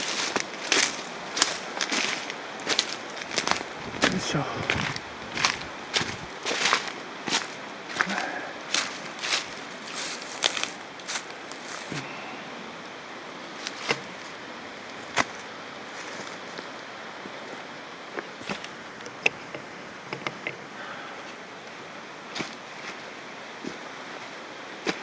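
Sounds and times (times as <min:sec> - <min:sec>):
footsteps crunching on trail: 0:00.0 - 0:12.2
steady rushing hiss: 0:00.0 - 0:25.0
twigs cracking underfoot: 0:00.1 - 0:12.0.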